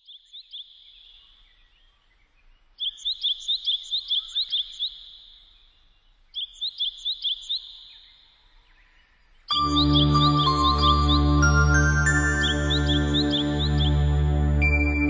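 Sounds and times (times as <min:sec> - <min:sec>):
songbird high rising chirps: 0:00.1 - 0:08.8, 0:09.5 - 0:15.0.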